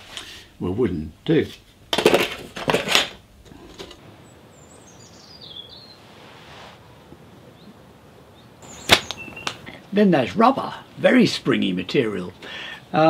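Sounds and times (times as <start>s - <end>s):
faint steady hiss: 0.0s - 13.0s
bird chirp falling in pitch: 8.6s - 9.7s
sharp snap: 8.8s - 9.7s.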